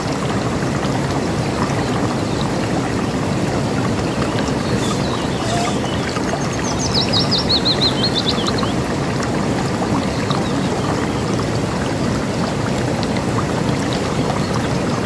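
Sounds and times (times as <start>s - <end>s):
river rushing and splashing: 0.0s - 15.0s
songbird singing: 3.9s - 8.9s
faint bird chirps: 4.4s - 8.7s.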